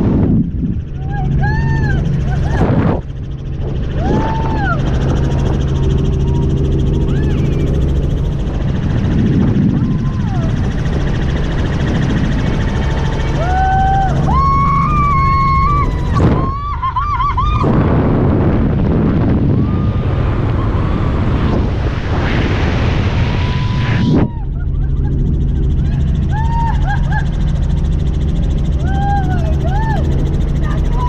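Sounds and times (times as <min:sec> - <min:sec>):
helicopter rotor and engine: 0:00.0 - 0:31.0
wind buffeting microphone: 0:00.0 - 0:31.0.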